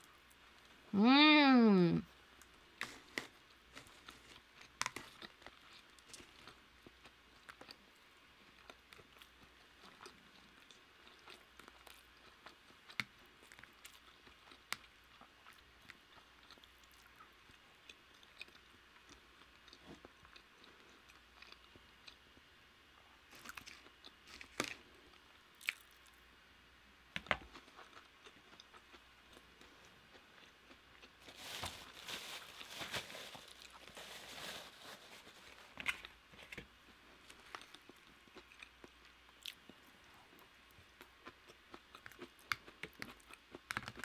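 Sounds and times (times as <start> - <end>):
chewing and wet mouth sounds: 2.4 - 22.4, 23.3 - 26.2, 27.2 - 31.2, 36.9 - 44.0.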